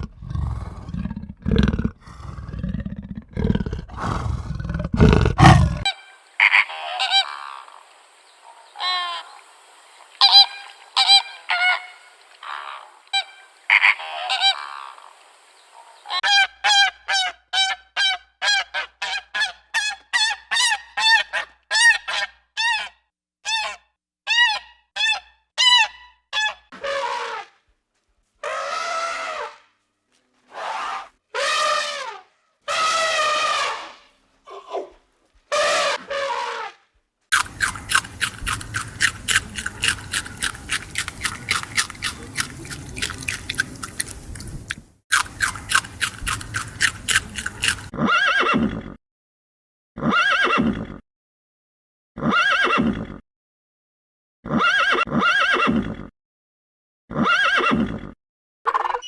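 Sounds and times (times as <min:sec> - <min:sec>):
low rumbling animal roar: 0:00.0 - 0:05.9
honking animal calls: 0:05.0 - 0:09.5, 0:10.1 - 0:15.2, 0:37.4 - 0:47.9.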